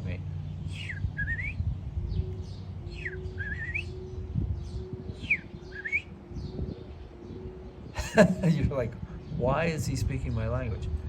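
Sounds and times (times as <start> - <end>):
high chirps: 0.6 - 8.6
person whistling bird calls: 0.7 - 1.6, 3.0 - 4.0, 5.2 - 6.2.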